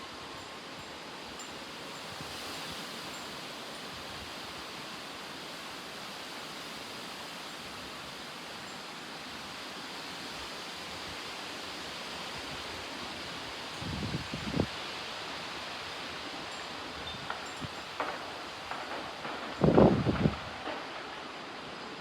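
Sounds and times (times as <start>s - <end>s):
strong wind rushing: 19.6s - 20.6s.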